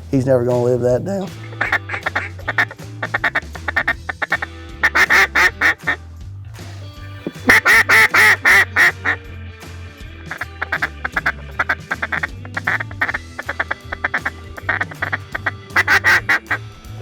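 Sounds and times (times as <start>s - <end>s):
background music with low beat: 0.0s - 17.0s
duck quacking: 1.3s - 6.0s, 7.2s - 9.2s, 10.2s - 16.7s.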